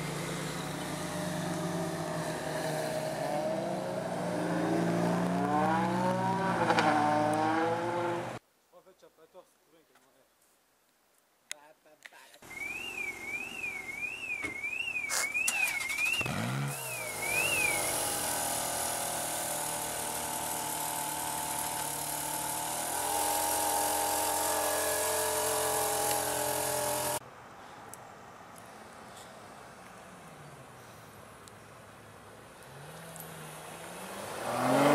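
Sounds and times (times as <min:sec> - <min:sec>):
car engine revving: 0:00.0 - 0:08.4, 0:15.6 - 0:27.2, 0:32.7 - 0:34.9.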